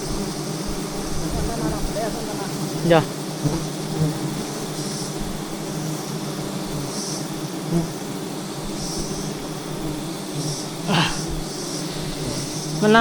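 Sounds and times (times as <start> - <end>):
bees buzzing: 0.0 - 13.0
short high hiss: 10.4 - 12.8.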